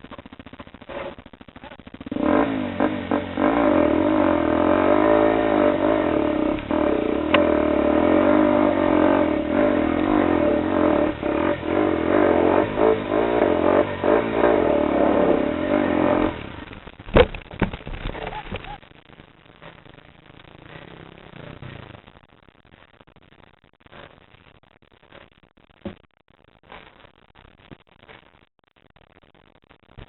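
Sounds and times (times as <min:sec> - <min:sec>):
motorcycle engine revving: 0:00.8 - 0:18.7.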